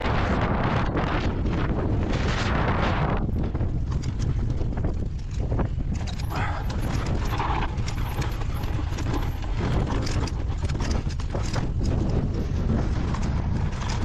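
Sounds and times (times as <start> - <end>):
low rumble: 0.0 - 14.0
wind buffeting microphone: 0.0 - 14.0
bicycle clicks and rattles: 3.2 - 14.0.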